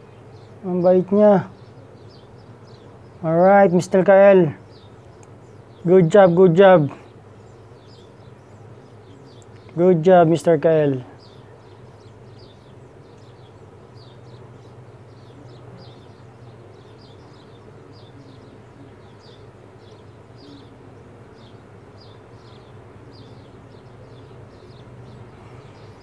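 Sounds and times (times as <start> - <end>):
low steady hum: 0.0 - 26.0
baby bird peeping: 4.6 - 26.0.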